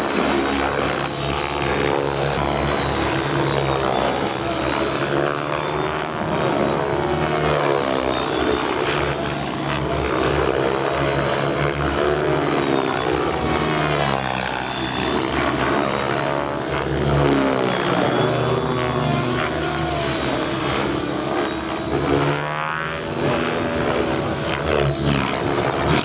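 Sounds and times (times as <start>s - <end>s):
model helicopter rotor whine: 0.0s - 26.0s.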